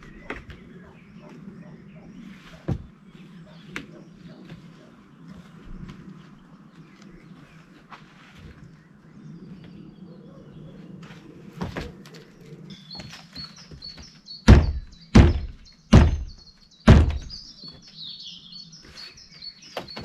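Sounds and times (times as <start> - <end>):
birds chirping: 0.0 - 20.0
hollow thunks on plastic roof: 14.0 - 17.4.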